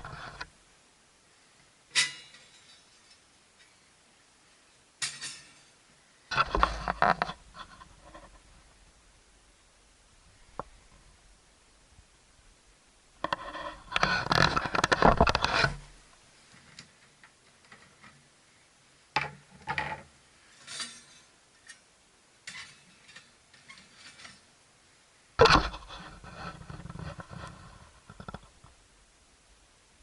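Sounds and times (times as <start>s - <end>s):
metal pieces clattering: 1.9s - 3.2s, 20.6s - 21.8s.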